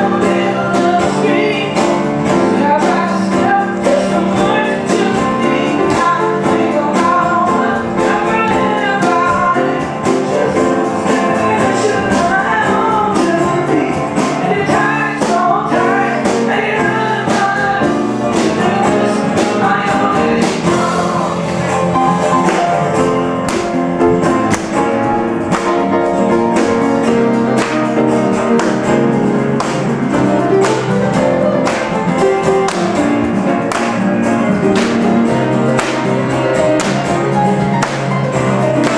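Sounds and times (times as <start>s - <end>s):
keyboard: 0.0s - 38.9s
sharp percussion hits: 19.4s - 38.9s.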